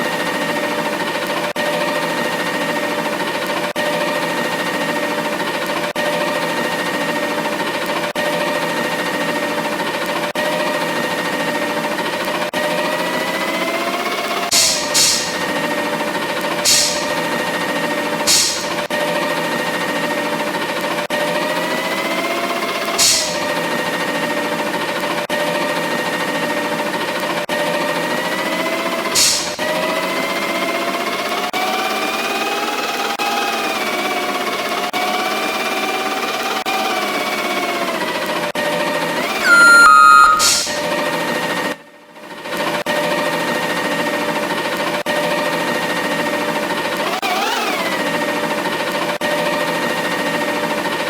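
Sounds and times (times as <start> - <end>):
air hiss: 14.6 - 15.4, 16.6 - 17.2, 18.3 - 18.8, 23.0 - 23.4, 29.2 - 29.6
garbage truck mechanical whine: 39.4 - 40.9.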